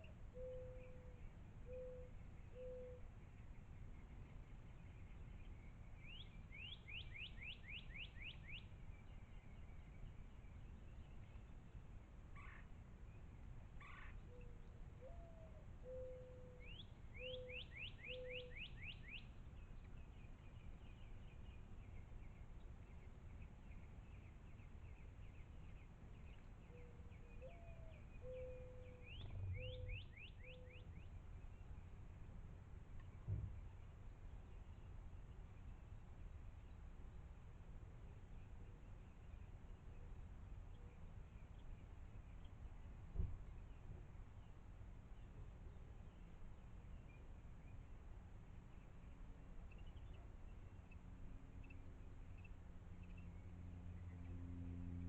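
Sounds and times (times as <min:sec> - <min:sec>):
bird cooing call: 0:00.0 - 0:03.0, 0:13.8 - 0:19.2, 0:26.7 - 0:30.8
faint low rumble: 0:00.0 - 0:55.0.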